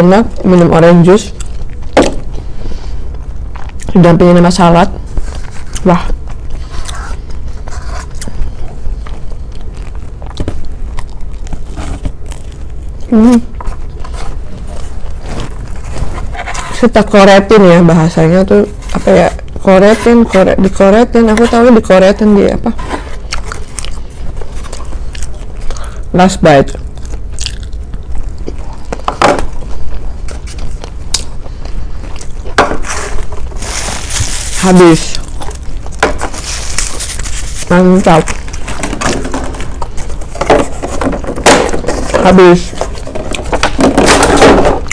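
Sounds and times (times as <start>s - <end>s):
chewing toast: 5.7s - 15.8s, 23.2s - 26.0s, 26.7s - 32.6s.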